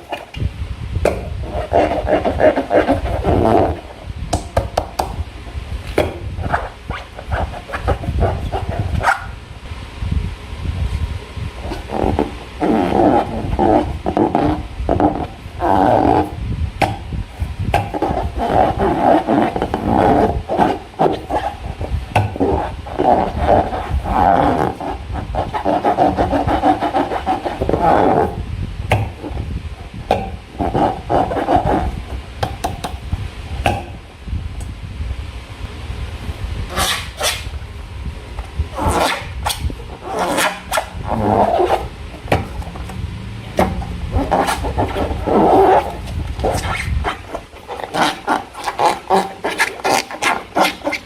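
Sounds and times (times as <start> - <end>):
slime squishing and rubbing: 1.1 - 5.2, 6.0 - 9.4, 11.6 - 28.4, 29.0 - 32.3, 38.7 - 51.0.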